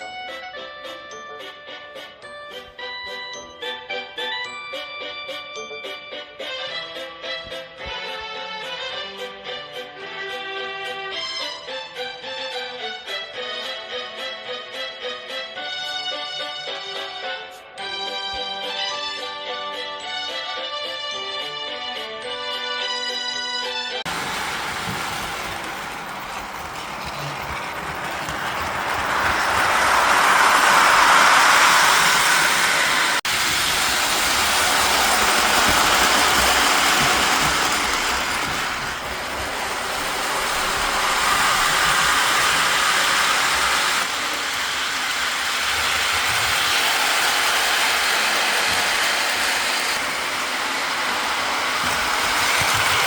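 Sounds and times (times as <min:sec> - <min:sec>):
model train whirring and rattling: 0:24.1 - 0:53.0.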